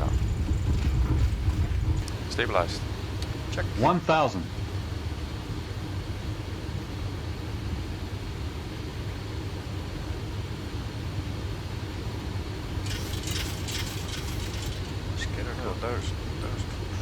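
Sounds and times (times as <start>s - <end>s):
low hum: 0.0s - 3.8s, 11.9s - 17.0s
airflow and engine noise: 0.0s - 17.0s.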